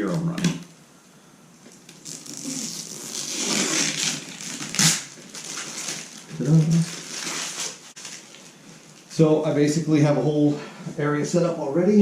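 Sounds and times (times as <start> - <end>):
packaging rustling and crunching: 1.7 - 9.1.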